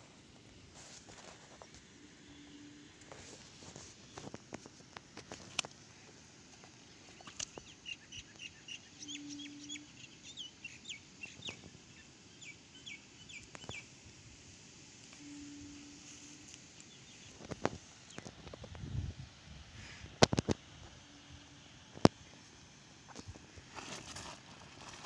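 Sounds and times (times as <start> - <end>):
birds chirping: 6.7 - 13.9.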